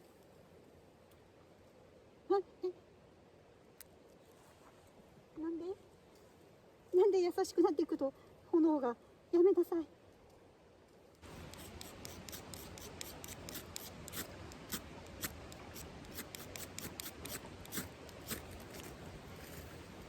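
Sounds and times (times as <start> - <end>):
campfire crackling: 10.2 - 20.0.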